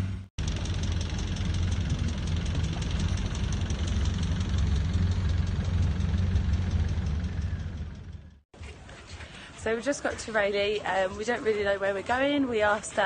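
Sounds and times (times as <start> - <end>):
boat engine clattering: 0.4 - 8.4.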